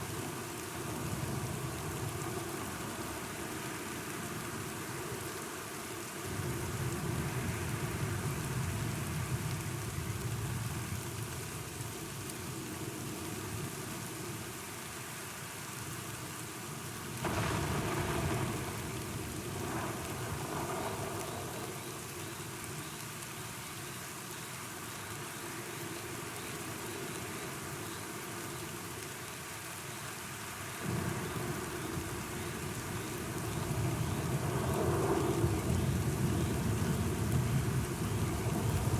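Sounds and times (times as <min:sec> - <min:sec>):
steady rain falling: 0:00.0 - 0:38.9
thunder rumbling: 0:17.2 - 0:22.2, 0:30.8 - 0:38.9.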